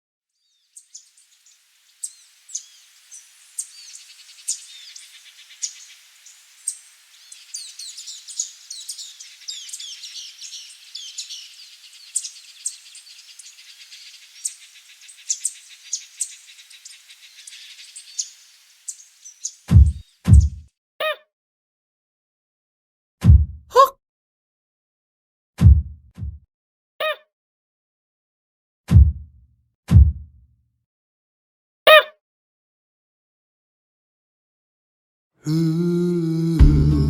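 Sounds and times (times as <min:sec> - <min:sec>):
songbirds chirping and singing: 0:00.5 - 0:20.5, 0:35.5 - 0:37.0.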